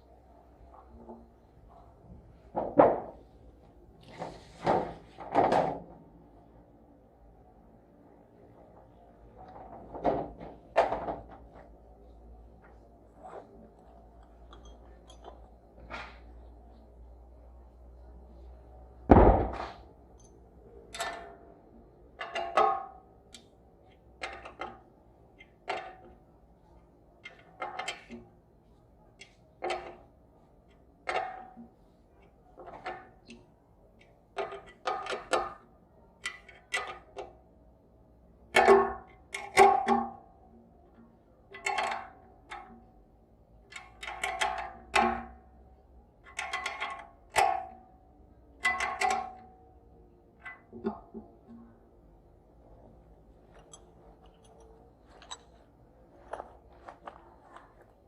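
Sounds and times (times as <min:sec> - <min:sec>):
metal clanks and taps: 0:14.2 - 0:16.3, 0:22.2 - 0:26.2, 0:27.2 - 0:28.3, 0:29.2 - 0:30.1, 0:30.7 - 0:35.6, 0:41.0 - 0:42.9, 0:43.7 - 0:45.4, 0:46.2 - 0:47.8, 0:48.6 - 0:49.4, 0:53.4 - 0:57.7.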